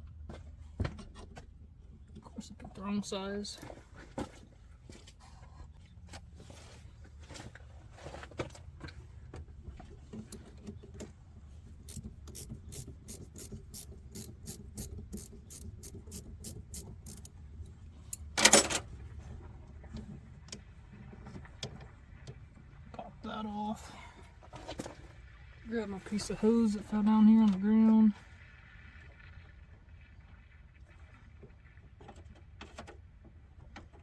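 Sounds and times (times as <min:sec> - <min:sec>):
hand tools clicking: 0:11.9 - 0:17.3.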